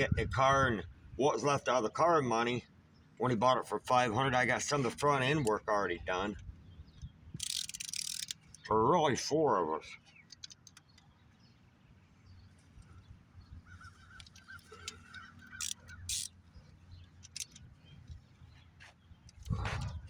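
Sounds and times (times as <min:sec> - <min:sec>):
hand tools clicking on metal: 0:07.4 - 0:08.7, 0:14.1 - 0:16.4, 0:17.0 - 0:17.7
faint bird calls: 0:12.2 - 0:20.0.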